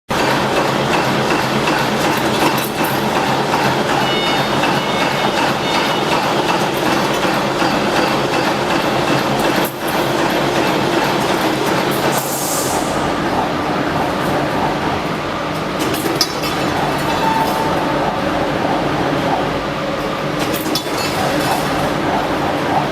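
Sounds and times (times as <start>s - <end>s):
machine running: 0.1s - 22.9s
short hiss: 12.2s - 13.0s.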